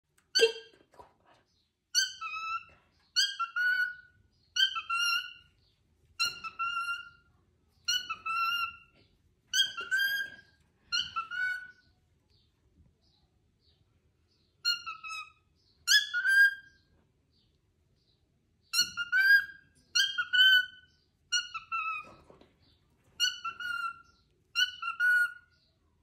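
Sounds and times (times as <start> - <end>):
cockatiel whistly calling: 2.0 - 5.4, 6.2 - 7.1, 7.9 - 8.8, 9.5 - 11.7, 14.6 - 16.7, 18.7 - 22.0, 23.2 - 24.0, 24.6 - 25.5.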